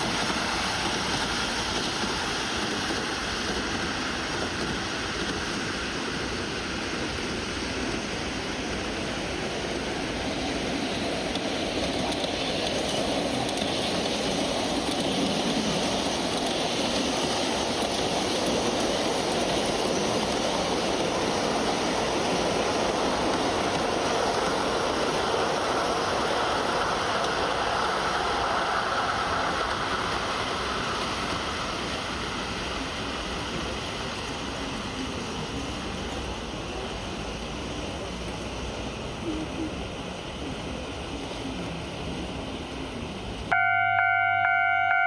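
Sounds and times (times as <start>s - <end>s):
train rolling past: 0.0s - 45.0s.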